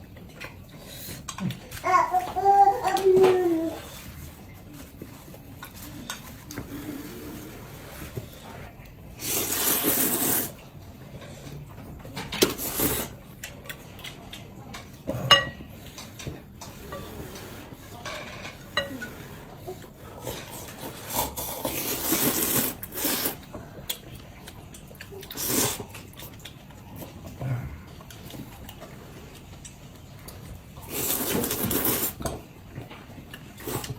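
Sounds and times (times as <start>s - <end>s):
utensils and dishes clinking: 9.2s - 23.5s.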